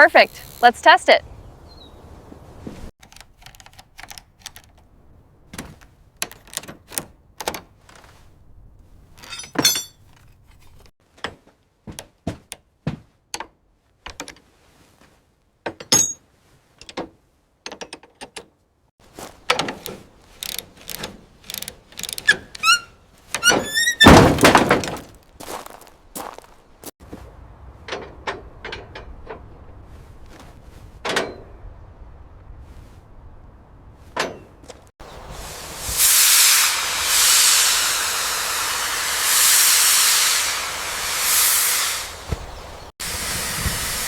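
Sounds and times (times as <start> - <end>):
sharp knocks and thunks: 11.2 - 13.5, 23.4 - 25.2
short high squeaks: 21.5 - 25.0.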